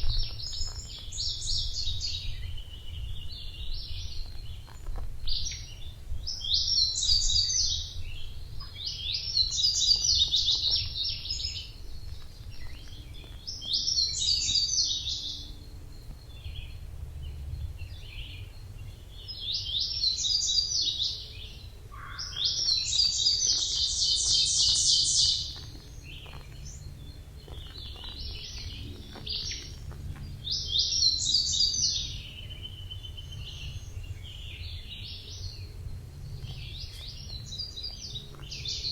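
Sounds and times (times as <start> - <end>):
low rumble: 0.0 - 20.0
songbird trilling: 0.0 - 38.9.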